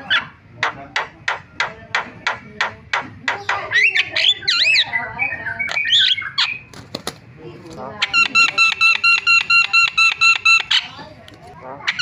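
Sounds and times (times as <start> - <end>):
bird harsh clicking notes: 0.0 - 5.0, 8.0 - 12.0
bird whistles and warbling: 3.2 - 6.8, 8.0 - 11.1.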